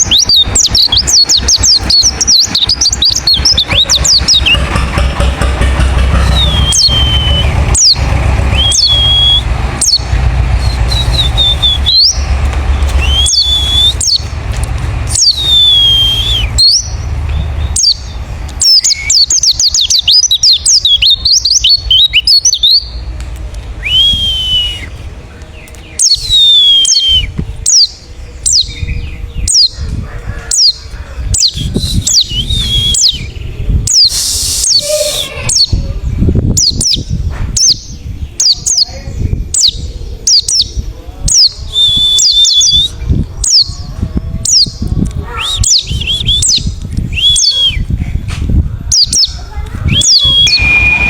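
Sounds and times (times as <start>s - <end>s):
bird chirping and whistling: 0.0s - 4.8s, 6.1s - 14.4s, 15.1s - 23.1s, 23.8s - 25.0s, 25.8s - 29.8s, 30.5s - 35.8s, 36.5s - 38.9s, 39.5s - 43.8s, 44.4s - 48.0s, 48.9s - 51.0s
low background rumble: 0.0s - 51.0s.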